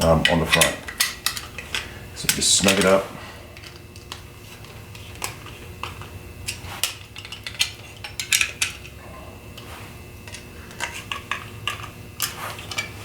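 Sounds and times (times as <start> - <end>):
hand tools clinking on metal bolts: 0.0 - 3.0.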